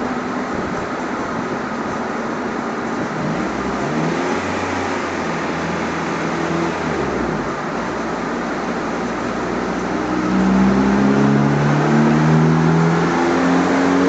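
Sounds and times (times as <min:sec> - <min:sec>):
engine running on a dyno: 0:00.0 - 0:14.0.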